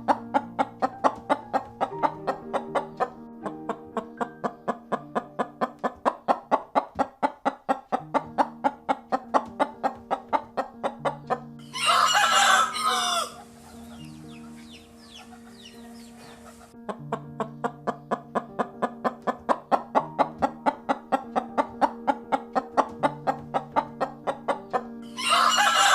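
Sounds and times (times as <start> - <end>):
rooster crowing: 11.7 - 13.5, 25.1 - 25.9.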